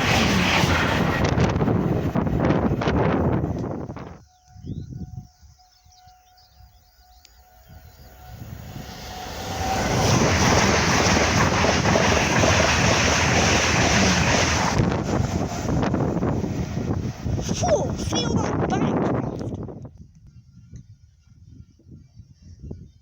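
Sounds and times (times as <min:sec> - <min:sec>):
train passing at speed: 0:00.0 - 0:19.8
faint birdsong: 0:04.2 - 0:09.1.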